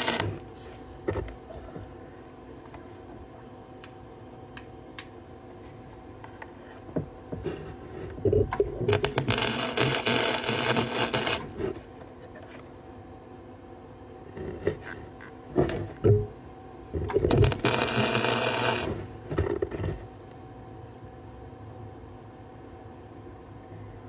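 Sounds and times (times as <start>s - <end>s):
crackling arc welding: 0.0s - 0.8s, 8.9s - 11.7s, 17.2s - 19.2s.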